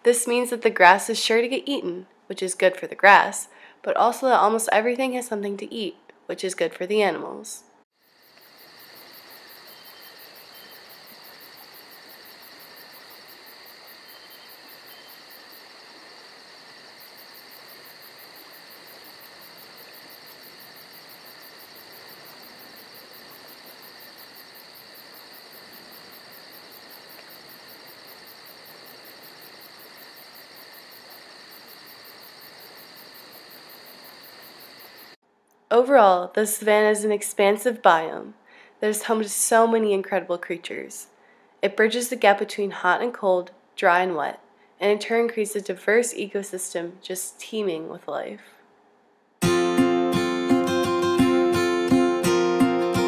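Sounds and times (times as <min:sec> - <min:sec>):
insects trilling: 0:08.0 - 0:35.2.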